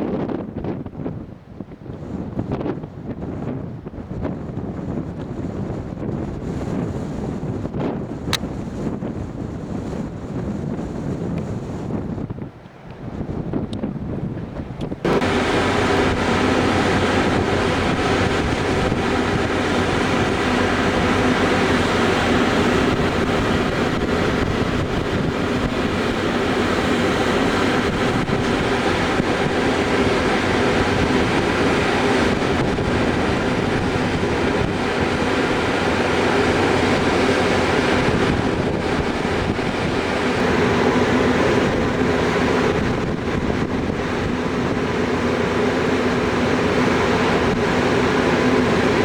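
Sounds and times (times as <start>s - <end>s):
wind rushing over microphone: 0.0s - 49.0s
ship engines droning: 12.5s - 49.0s.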